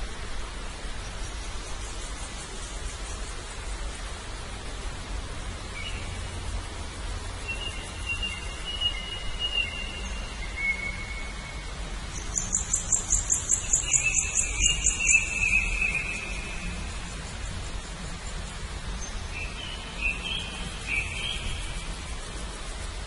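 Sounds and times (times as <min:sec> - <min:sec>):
background hiss: 0:00.0 - 0:23.0
long thin whistled bird notes: 0:05.7 - 0:06.4, 0:07.4 - 0:22.8.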